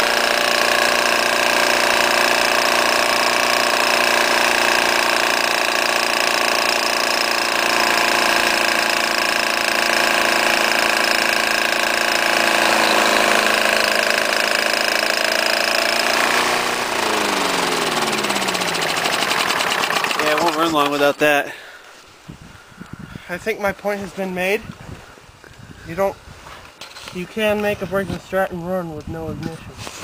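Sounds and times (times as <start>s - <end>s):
small engine running: 0.0s - 21.8s.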